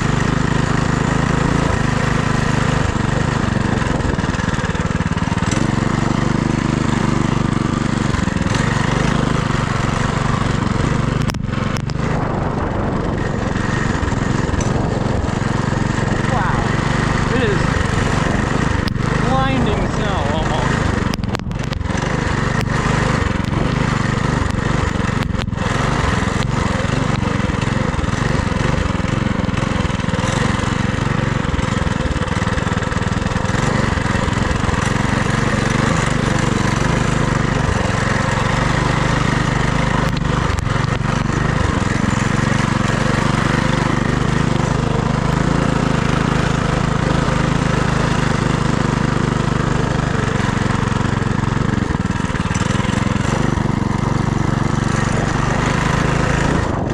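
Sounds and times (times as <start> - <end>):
small single-cylinder engine running: 0.0 - 56.9
wind rush over microphone: 2.9 - 4.7, 10.6 - 22.1, 53.5 - 56.9.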